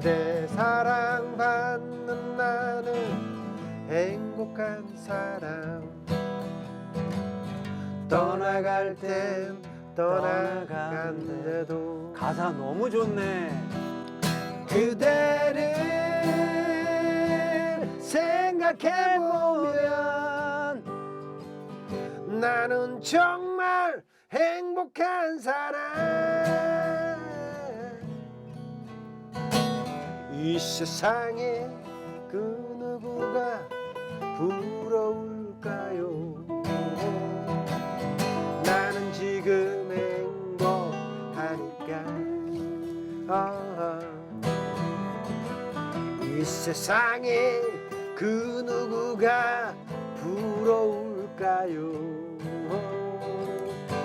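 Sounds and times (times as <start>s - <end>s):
slow ballad singing: 0.0s - 28.2s, 30.0s - 54.0s
acoustic guitar strumming: 0.0s - 54.0s.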